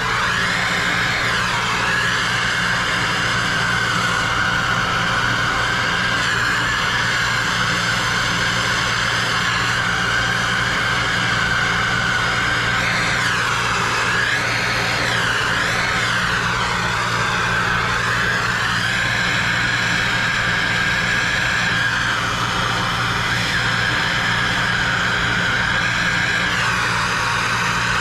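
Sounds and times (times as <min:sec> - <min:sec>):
torch flame hissing: 0:00.0 - 0:28.0.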